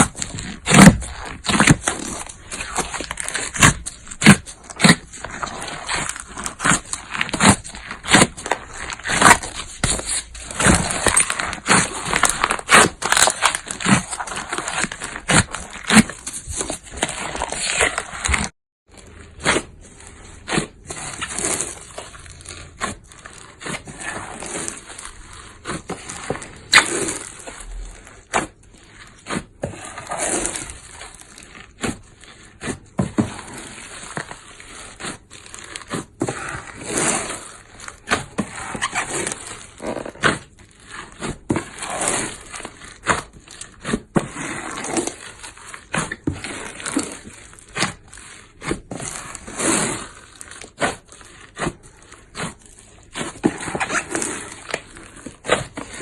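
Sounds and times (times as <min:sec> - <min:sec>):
slime popping and crackling: 0:00.0 - 0:18.5
hands kneading slime: 0:00.0 - 0:56.0.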